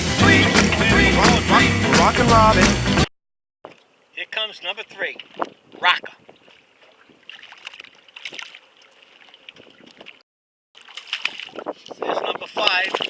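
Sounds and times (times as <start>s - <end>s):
water sloshing around boat: 4.8s - 10.2s, 10.8s - 13.0s.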